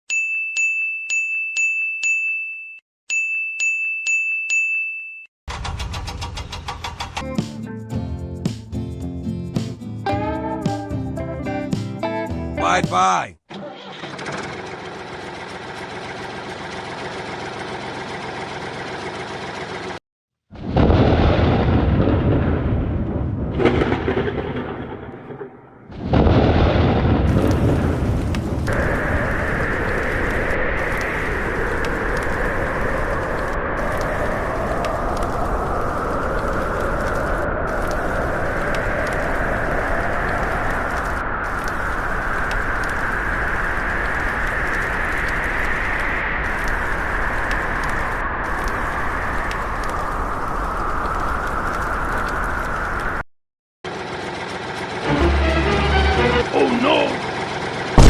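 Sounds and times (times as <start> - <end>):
high bell-like ringing tone: 0.1 - 5.3
thunder rumbling: 20.6 - 53.2
steady hiss: 27.3 - 53.1.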